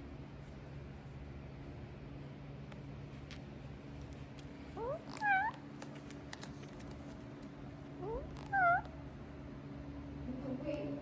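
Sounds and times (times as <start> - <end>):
meow-like calls: 4.8 - 5.6, 8.0 - 9.0.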